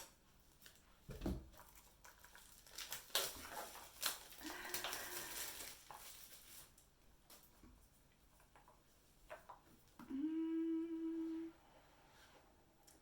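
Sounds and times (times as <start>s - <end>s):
packaging crinkling: 1.6s - 7.5s.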